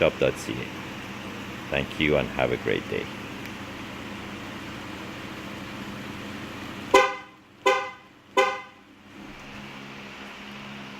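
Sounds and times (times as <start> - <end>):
car horn chirping: 6.9 - 8.9.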